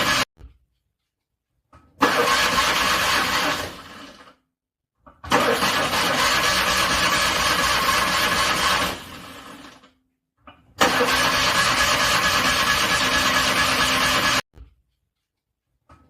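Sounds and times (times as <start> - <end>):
car starter motor cranking: 2.0 - 4.3, 5.2 - 9.8, 10.8 - 14.4.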